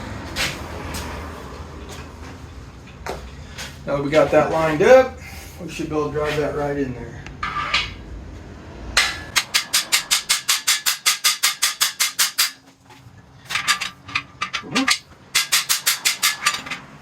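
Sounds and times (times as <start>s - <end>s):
hammer striking metal tool: 9.0s - 12.6s, 13.5s - 17.0s.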